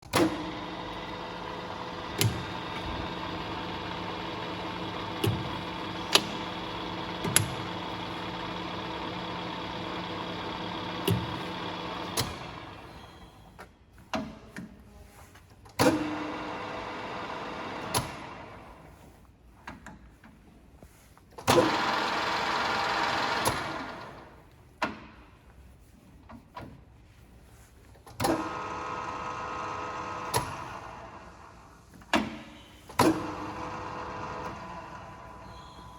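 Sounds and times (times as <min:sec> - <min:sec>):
sharp clicks and knocks: 0:00.0 - 0:12.8
metal lathe whining: 0:00.2 - 0:13.1, 0:21.5 - 0:24.3, 0:33.1 - 0:35.9.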